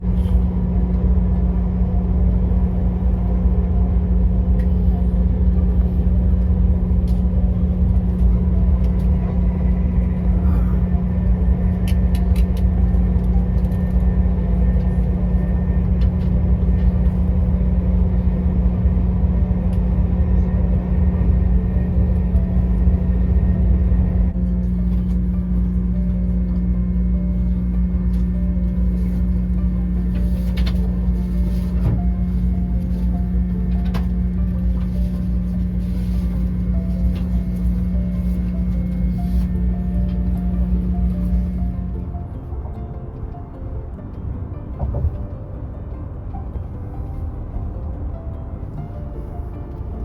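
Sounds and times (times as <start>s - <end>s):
constant hum: 0.0s - 50.0s
vehicle rumbling in motion: 0.0s - 50.0s.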